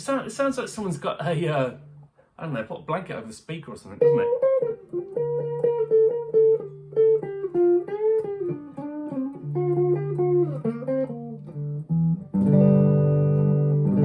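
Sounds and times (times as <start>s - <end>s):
clean electric guitar: 4.0s - 14.0s.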